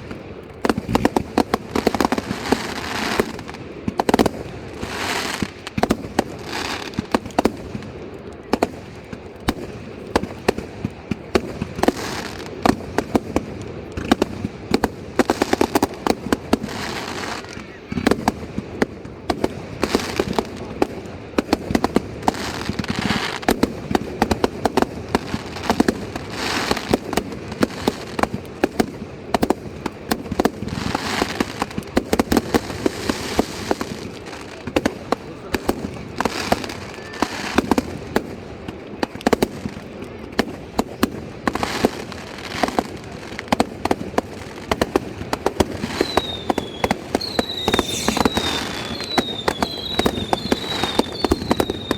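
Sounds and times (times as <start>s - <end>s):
fireworks bangs and crackling: 0.0s - 51.9s
falling firework whistles: 16.7s - 18.4s, 36.4s - 37.8s, 45.7s - 51.9s.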